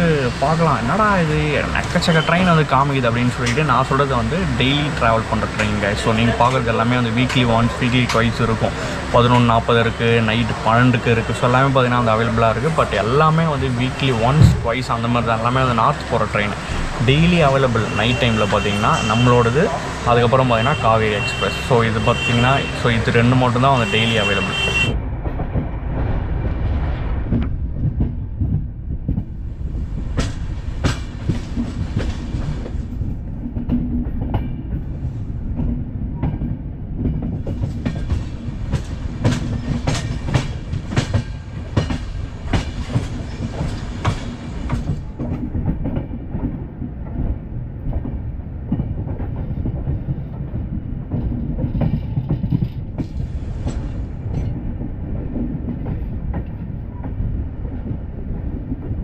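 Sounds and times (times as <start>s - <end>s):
train clattering over rail joints: 0.0s - 59.0s
train wheels rumbling on rails: 0.0s - 59.0s.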